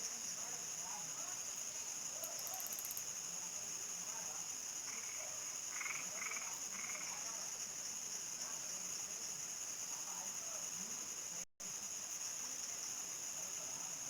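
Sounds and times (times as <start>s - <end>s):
cricket and insect chorus: 0.0s - 14.0s
frogs croaking: 4.8s - 7.4s.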